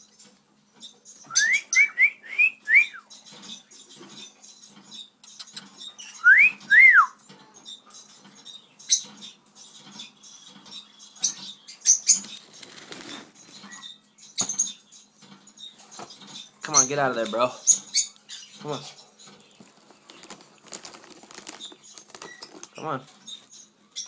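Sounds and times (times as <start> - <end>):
cockatiel whistling: 1.3 - 3.0
plastic bag crinkling: 12.3 - 13.5, 19.3 - 23.5.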